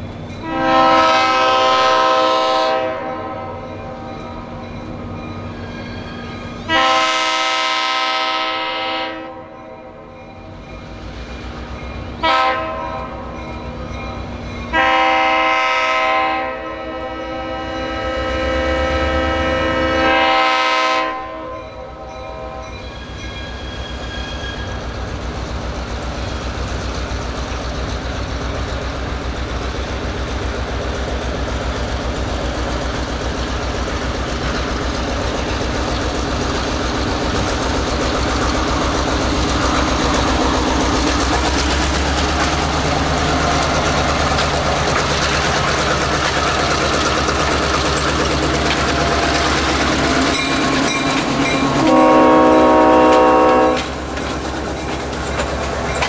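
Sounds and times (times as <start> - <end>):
diesel locomotive rumbling: 0.0 - 56.0
locomotive horn blast: 0.4 - 3.7, 6.7 - 9.8, 12.2 - 13.3, 14.7 - 22.8, 51.7 - 54.1
wheels clacking over rail joints: 22.6 - 56.0.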